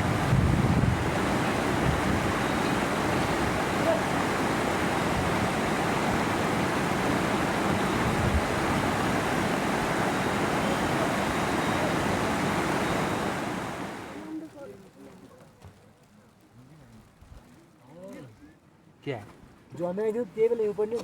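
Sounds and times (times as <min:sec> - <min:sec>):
loud rushing water: 0:00.0 - 0:14.3.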